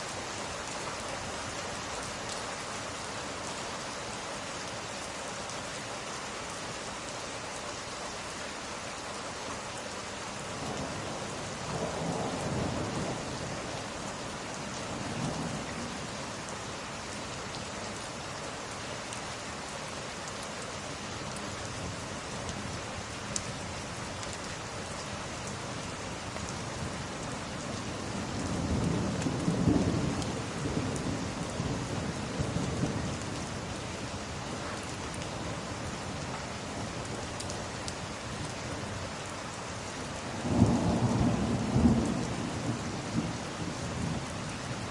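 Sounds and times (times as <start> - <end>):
steady rain: 0.0 - 44.9.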